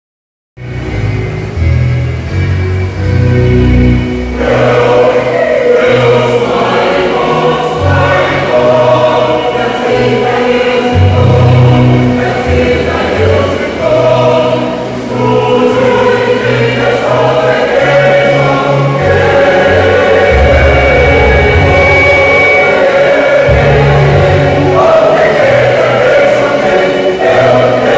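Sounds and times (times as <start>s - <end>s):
choir singing in harmony: 1.0s - 27.9s
low bass line: 17.8s - 22.8s.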